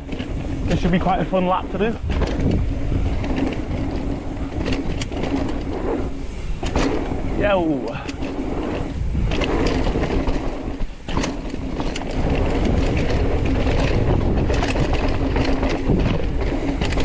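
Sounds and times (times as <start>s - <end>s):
bike rattling and clicking: 0.0s - 17.0s
tyres rumbling over dirt: 0.0s - 17.0s
wind buffeting microphone: 0.0s - 17.0s.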